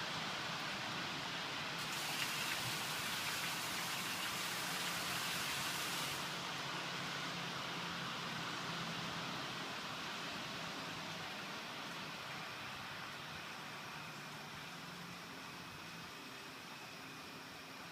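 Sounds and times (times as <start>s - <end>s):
steady rain falling: 1.5s - 6.7s.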